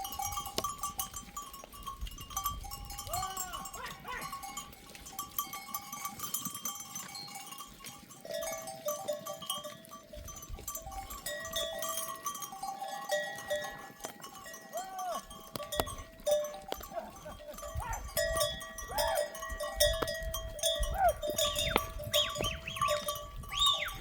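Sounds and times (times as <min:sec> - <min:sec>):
animal bells clinking: 0:00.0 - 0:24.0
goat bleat: 0:03.1 - 0:04.4, 0:12.9 - 0:15.3, 0:16.7 - 0:18.1.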